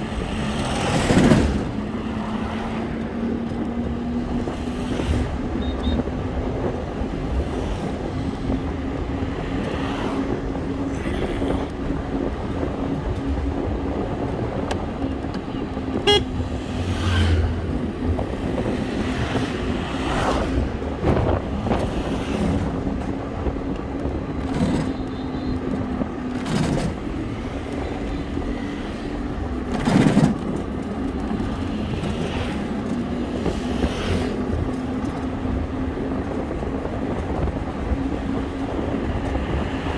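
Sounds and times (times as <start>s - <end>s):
engine hum: 0.0s - 39.9s
vehicles passing by: 0.0s - 39.9s
short horn beep: 5.6s - 6.0s, 16.0s - 16.4s.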